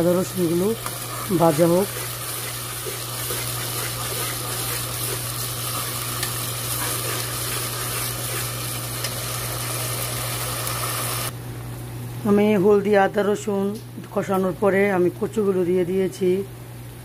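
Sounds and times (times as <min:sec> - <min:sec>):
steady low hum: 0:00.0 - 0:10.5
paste sizzling in oil: 0:00.0 - 0:11.3
spatula stirring in pan: 0:00.4 - 0:09.8.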